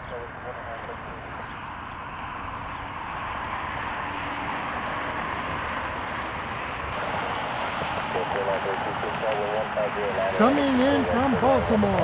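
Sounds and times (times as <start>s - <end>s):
jet engines rushing: 0.0s - 12.0s.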